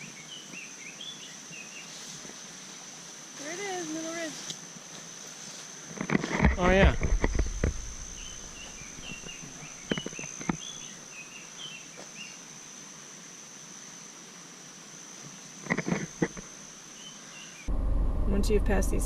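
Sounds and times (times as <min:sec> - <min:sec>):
small birds chirping: 0:00.0 - 0:02.8, 0:07.3 - 0:12.4.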